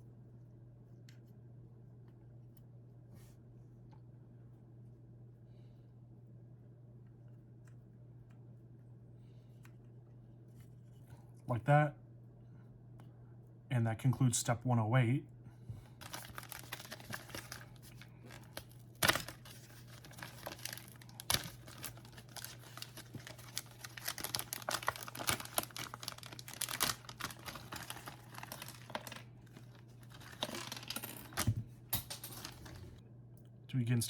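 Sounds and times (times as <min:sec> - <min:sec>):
low steady hum: 0:00.0 - 0:34.0
plastic wrapping crinkling: 0:16.0 - 0:31.4.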